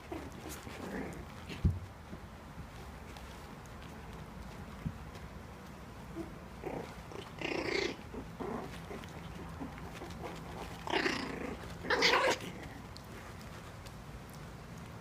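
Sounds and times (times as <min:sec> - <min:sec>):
puppies squeaky growling: 0:06.1 - 0:12.9.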